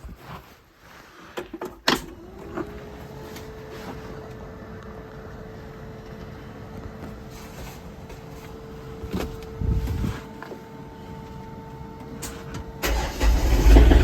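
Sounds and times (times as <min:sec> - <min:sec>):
diesel engine cranking: 0:12.8 - 0:14.0
tractor engine idling: 0:12.8 - 0:14.0.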